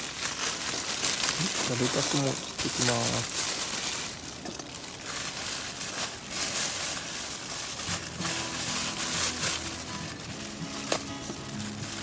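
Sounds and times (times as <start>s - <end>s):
faint music with held notes: 7.6s - 12.0s.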